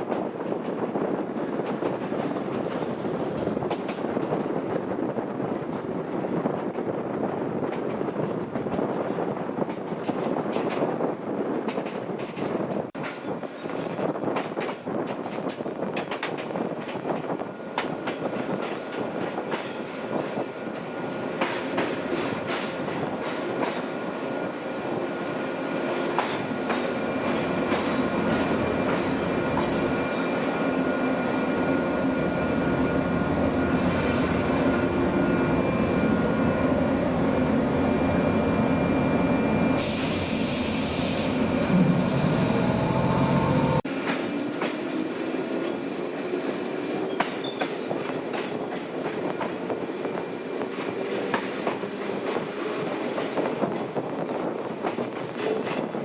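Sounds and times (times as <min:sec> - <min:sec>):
train wheels clicking over rail joints: 0:00.0 - 0:04.6, 0:07.6 - 0:45.8, 0:46.5 - 0:56.0
wheel squeal: 0:27.2 - 0:36.1, 0:47.1 - 0:47.8
rising motor whine: 0:41.3 - 0:43.8.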